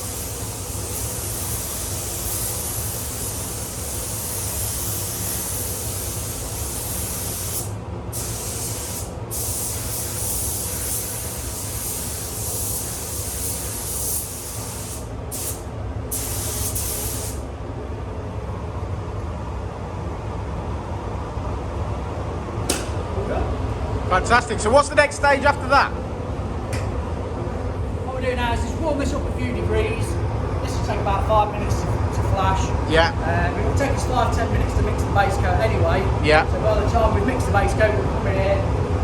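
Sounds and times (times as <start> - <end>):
paint spray gun hissing: 0.0 - 17.4
steady low hum: 0.0 - 39.0.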